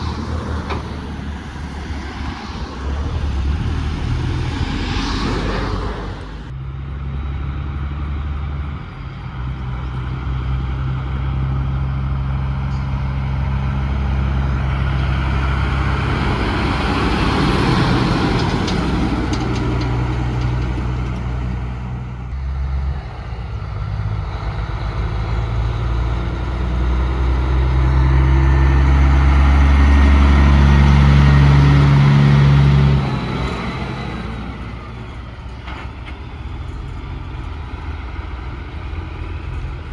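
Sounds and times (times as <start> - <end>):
trucks passing with engine drone: 0.0 - 39.9.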